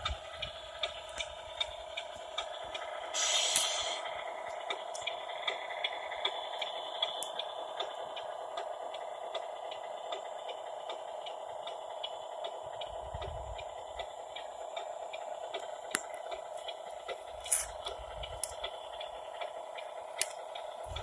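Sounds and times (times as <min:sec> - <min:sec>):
toy truck motor whining: 0:00.0 - 0:21.0
small ticks and clicks: 0:00.1 - 0:02.9, 0:14.0 - 0:21.0
low rumble: 0:12.6 - 0:14.6, 0:16.2 - 0:19.4, 0:20.8 - 0:21.0.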